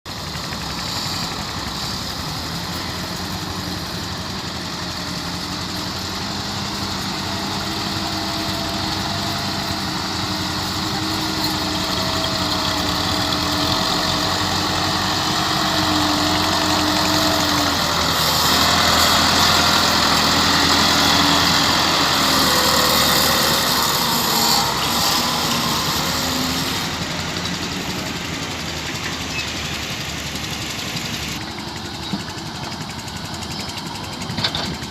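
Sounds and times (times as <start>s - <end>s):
tractor diesel engine under load: 0.0s - 34.9s.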